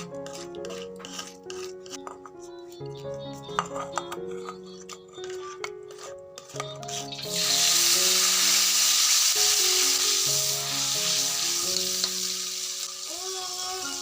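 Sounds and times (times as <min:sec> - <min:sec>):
soft background music: 0:00.0 - 0:14.0
food sizzling in oil: 0:06.5 - 0:14.0.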